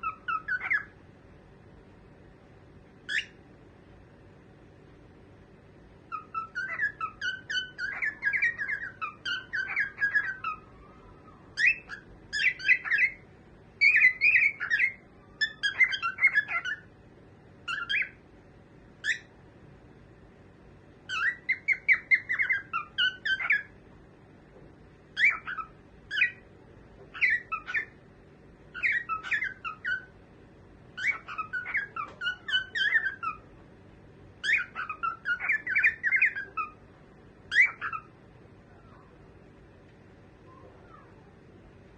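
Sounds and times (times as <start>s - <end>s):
cockatiel chirping rapidly: 0.0s - 0.9s, 3.1s - 3.4s, 6.1s - 13.2s, 13.8s - 16.9s, 17.6s - 18.2s, 19.0s - 19.3s, 21.1s - 23.7s, 25.2s - 26.4s, 27.1s - 28.0s, 28.7s - 30.1s, 31.0s - 33.5s, 34.4s - 36.8s, 37.5s - 38.1s.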